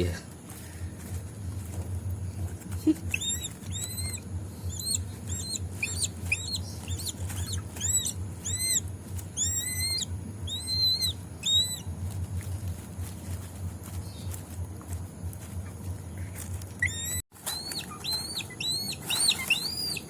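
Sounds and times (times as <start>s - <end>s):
eagle squealing calls: 3.0s - 12.0s, 16.8s - 20.0s.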